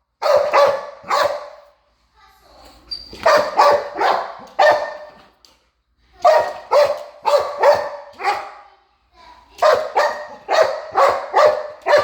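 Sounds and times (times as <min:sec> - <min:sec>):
dog barking: 0:00.2 - 0:01.7, 0:03.2 - 0:05.2, 0:06.2 - 0:08.7, 0:09.6 - 0:12.0.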